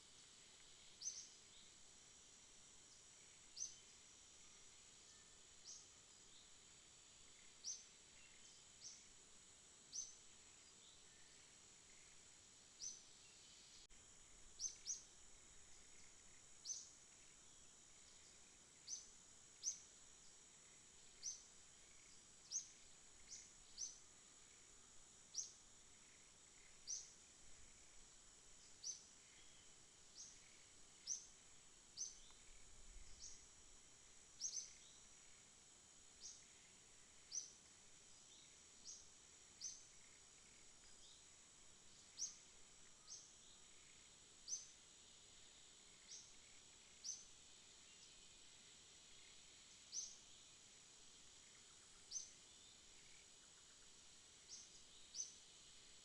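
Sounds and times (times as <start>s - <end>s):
high-pitched insect drone: 9.9s - 50.5s.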